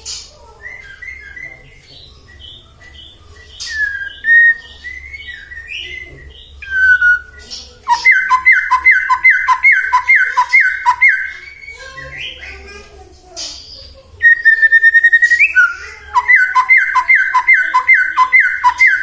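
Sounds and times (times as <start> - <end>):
bird singing whistled phrases: 0.5 - 12.4, 14.2 - 19.0
fast down-slurred bird whistles: 3.6 - 11.8, 14.2 - 19.0.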